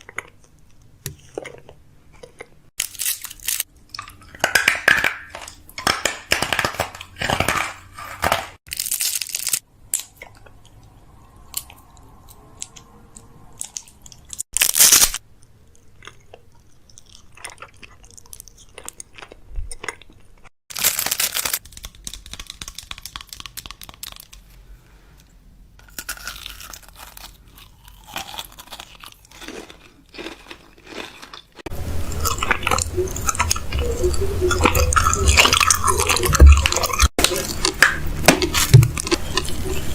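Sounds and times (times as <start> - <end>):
plastic packaging crinkling: 5.3 - 9.7, 20.7 - 24.6.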